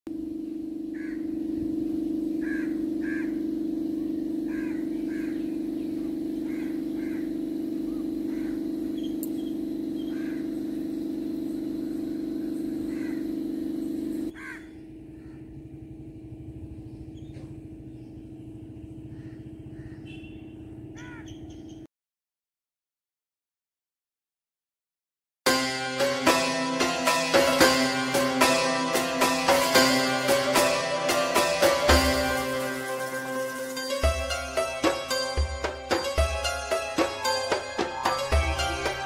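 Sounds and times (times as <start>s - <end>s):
loud steady low hum: 0.1s - 20.9s, 25.5s - 39.0s
birds calling: 1.0s - 1.2s, 2.3s - 3.4s, 4.5s - 10.6s, 12.6s - 13.3s, 14.3s - 15.7s, 16.7s - 21.9s.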